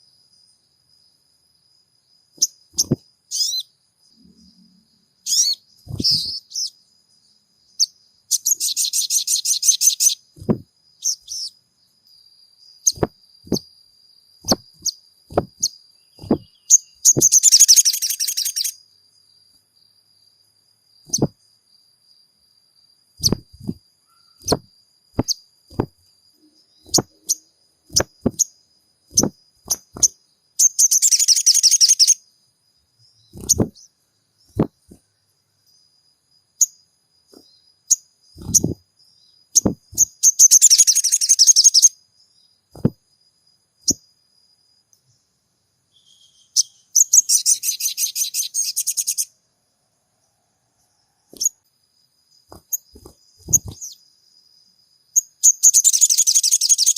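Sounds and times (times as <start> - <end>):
bird chattering trills: 2.4 - 3.7, 5.3 - 6.7, 14.4 - 18.8, 29.2 - 32.2, 33.4 - 33.9, 39.6 - 41.9
sharp single clicks: 27.9 - 28.5.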